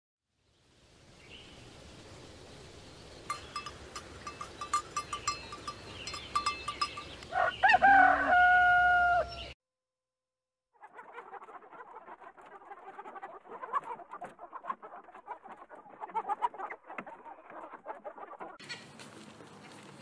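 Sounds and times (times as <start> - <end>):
rooster crowing: 7.3 - 9.6.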